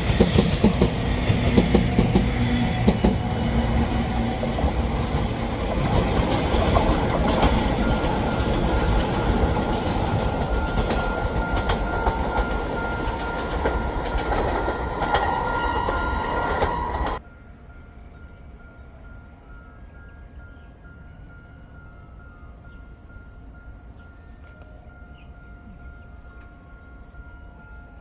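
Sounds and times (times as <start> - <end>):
train wheels clacking: 0.0 - 17.2.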